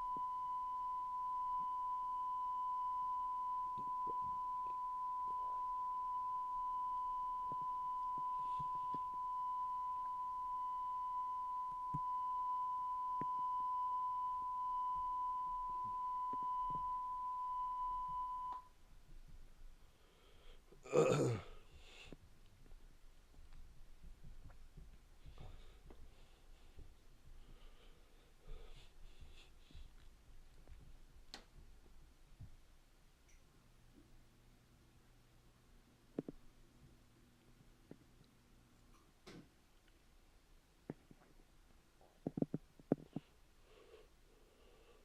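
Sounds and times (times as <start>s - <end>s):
steady high-pitched tone: 0.0s - 18.7s
faint tape hiss: 0.0s - 45.0s.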